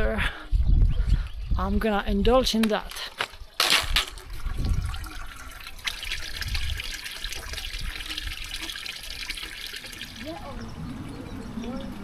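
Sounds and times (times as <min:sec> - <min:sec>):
water running from a tap: 0:04.2 - 0:10.6.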